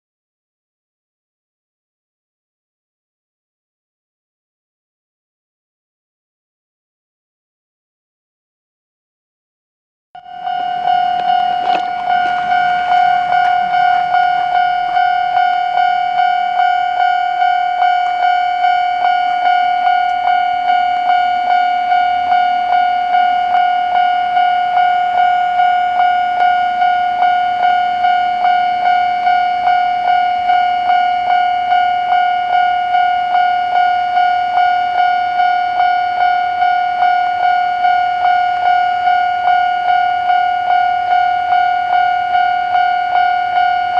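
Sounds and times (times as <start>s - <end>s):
level crossing warning bell: 10.2s - 43.9s.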